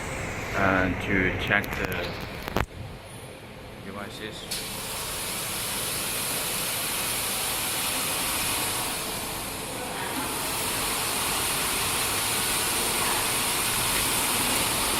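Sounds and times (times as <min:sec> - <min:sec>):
extrusion machinery hissing rush: 0:04.5 - 0:14.9.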